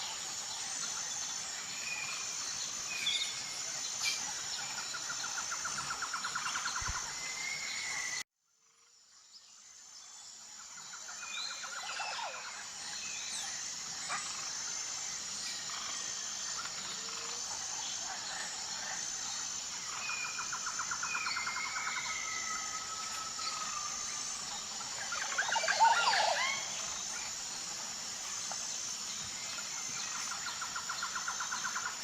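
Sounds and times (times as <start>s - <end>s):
insects buzzing: 0.0s - 32.0s.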